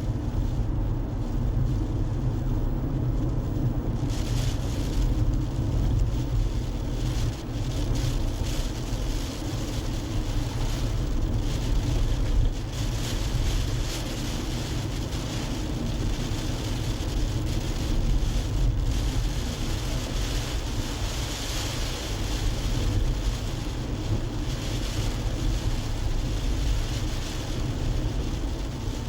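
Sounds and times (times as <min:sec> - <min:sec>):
road and tyre rumble: 0:00.0 - 0:29.0.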